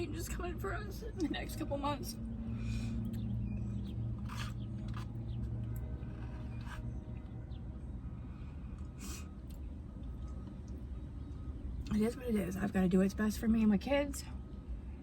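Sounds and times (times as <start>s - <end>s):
low hum: 0.0s - 15.0s
person eating crunchy food: 4.2s - 6.8s.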